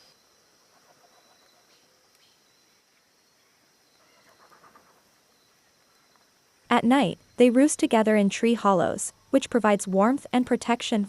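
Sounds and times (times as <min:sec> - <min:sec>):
soft bird calls: 0:00.0 - 0:06.4
high insect hum: 0:00.0 - 0:11.0.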